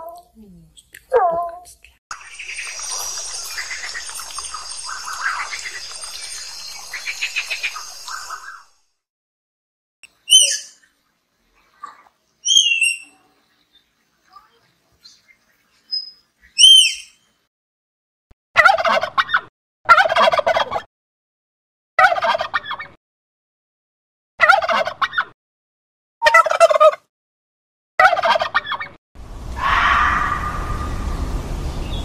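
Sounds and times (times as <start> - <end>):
steady hiss: 2.2 - 8.6
turkey gobbling: 18.6 - 20.9, 22.0 - 22.9, 24.4 - 25.3, 26.2 - 27.0, 28.0 - 28.9.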